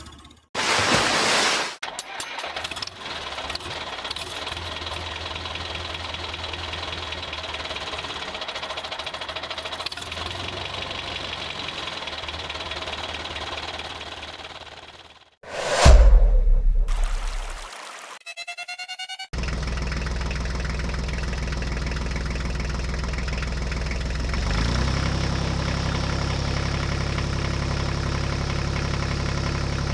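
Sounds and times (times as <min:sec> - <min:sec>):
tractor engine knocking: 0:02.6 - 0:15.2, 0:19.4 - 0:29.9.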